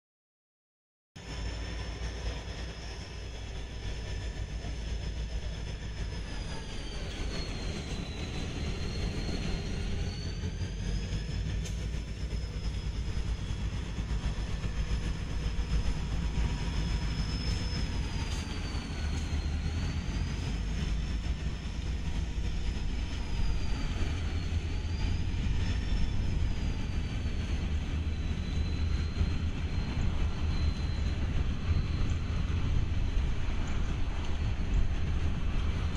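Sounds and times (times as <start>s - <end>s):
freight train rumbling past: 1.2s - 35.9s.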